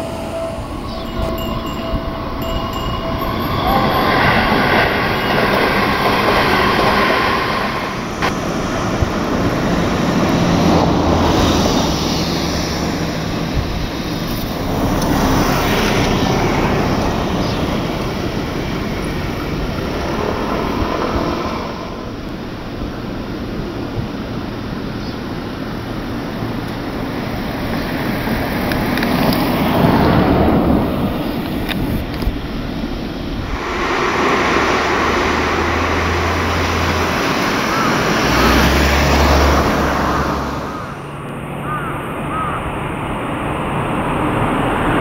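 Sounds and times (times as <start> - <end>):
ringing wheel squeal: 0.0 - 8.2.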